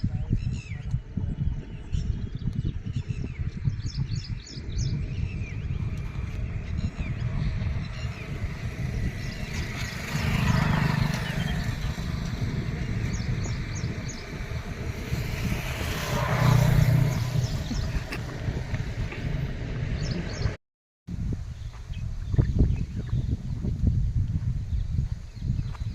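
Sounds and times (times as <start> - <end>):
low outdoor rumble: 5.0 - 20.6.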